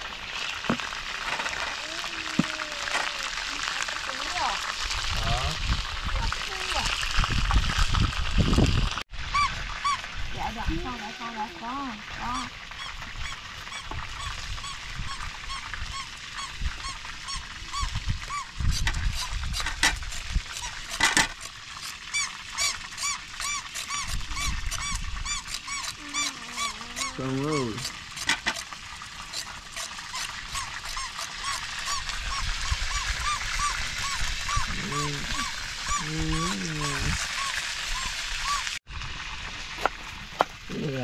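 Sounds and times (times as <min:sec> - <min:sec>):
knife peeling a carrot: 0:18.7 - 0:33.1
lower wavering bird call: 0:22.1 - 0:27.8, 0:30.2 - 0:38.8
birds chirping: 0:22.1 - 0:28.4, 0:30.5 - 0:38.8.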